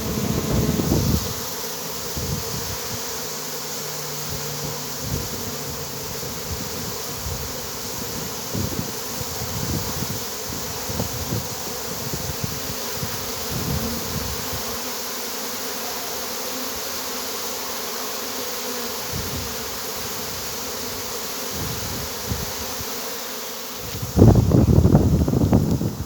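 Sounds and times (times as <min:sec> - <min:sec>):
loud low rumble: 0:00.0 - 0:01.1
honeybees buzzing: 0:00.0 - 0:26.0.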